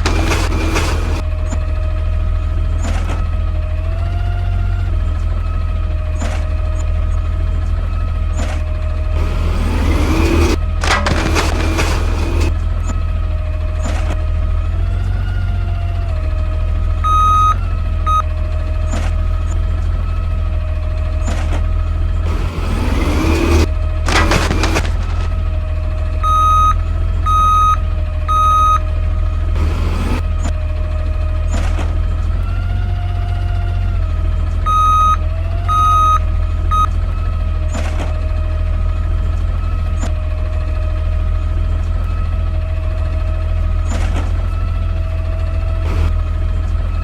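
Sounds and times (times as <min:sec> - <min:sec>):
steady whine: 0:00.0 - 0:01.2, 0:09.2 - 0:12.6, 0:22.2 - 0:25.5, 0:29.5 - 0:30.2, 0:45.8 - 0:46.2
garbage truck engine humming: 0:00.0 - 0:47.0
electronic beeps: 0:17.1 - 0:18.2, 0:26.2 - 0:28.8, 0:34.7 - 0:36.9.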